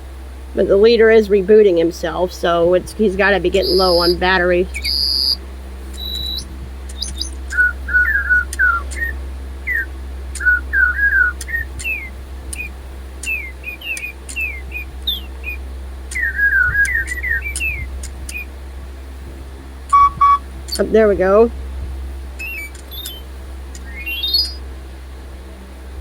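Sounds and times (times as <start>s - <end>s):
electronic toy birdsong: 3.2s - 18.5s, 19.9s - 21.0s, 22.4s - 24.6s
high electronic beep: 4.8s - 5.4s, 6.0s - 6.4s, 19.9s - 20.4s, 22.4s - 23.2s.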